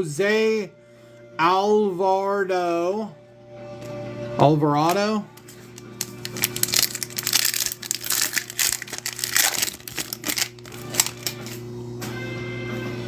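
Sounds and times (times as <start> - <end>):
card wrappers crumpled and torn: 5.8 - 11.6.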